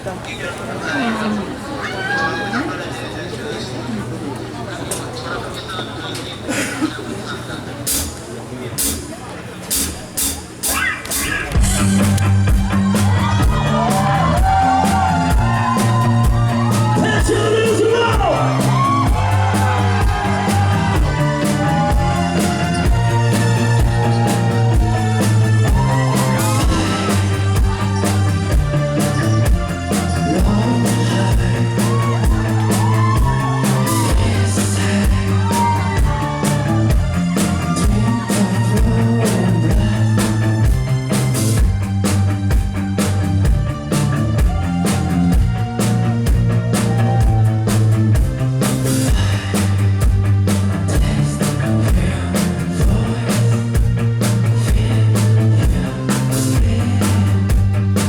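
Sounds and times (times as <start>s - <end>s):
steady drum beat: 7.9s - 58.0s
bass guitar: 8.8s - 58.0s
man singing: 17.0s - 19.2s, 21.0s - 28.3s, 29.2s - 40.8s, 50.8s - 58.0s.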